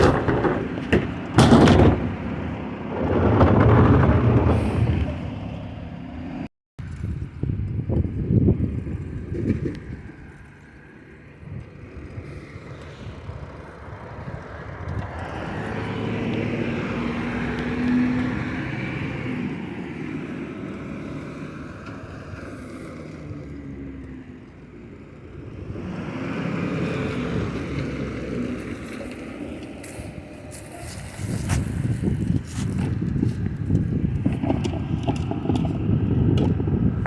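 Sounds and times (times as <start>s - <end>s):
loud clattering knocks: 0.0s - 5.2s.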